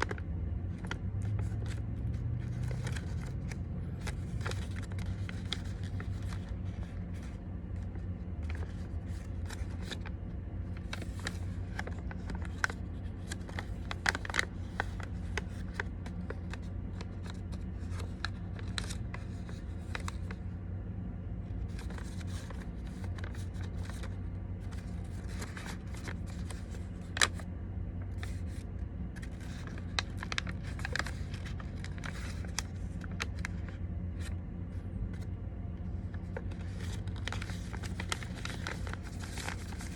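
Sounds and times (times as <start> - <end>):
paper rustling and creasing: 0.0 - 20.7, 21.4 - 39.9
steady low hum: 0.0 - 39.9.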